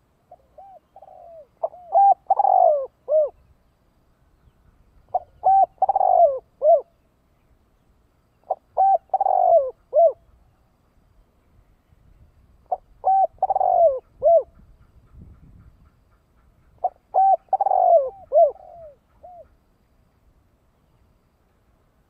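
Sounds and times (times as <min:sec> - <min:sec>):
dove cooing: 0:00.3 - 0:03.4, 0:05.1 - 0:07.0, 0:08.4 - 0:10.4, 0:12.7 - 0:14.7, 0:16.8 - 0:19.6.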